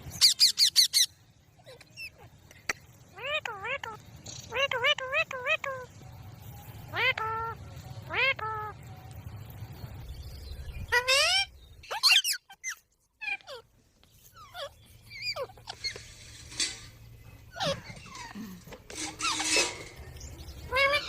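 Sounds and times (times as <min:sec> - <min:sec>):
parrot squawking: 0:00.2 - 0:01.1, 0:06.9 - 0:08.8, 0:10.9 - 0:13.7, 0:14.3 - 0:16.9, 0:17.5 - 0:21.0.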